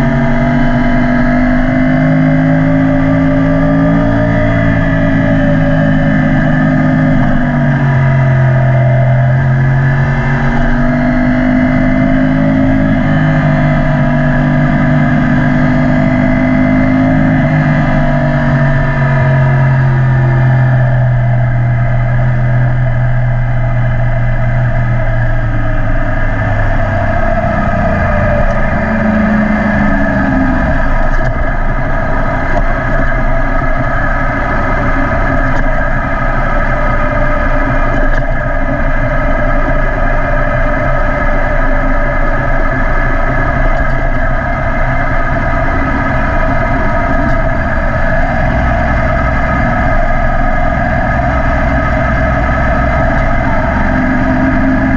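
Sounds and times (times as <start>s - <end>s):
motorcycle engine: 0.0s - 54.9s.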